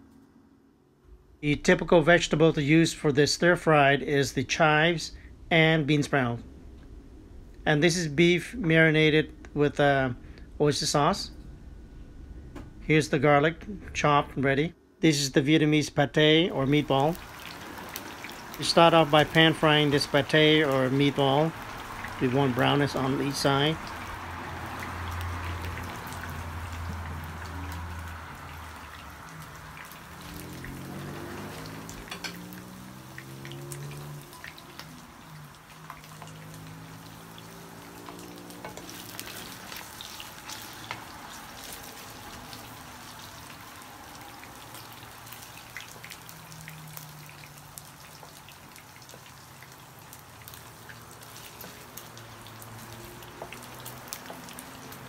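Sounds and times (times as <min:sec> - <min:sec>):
food frying in oil: 0:16.5 - 0:55.0
wooden spatula stirring: 0:34.0 - 0:43.7, 0:50.6 - 0:55.0.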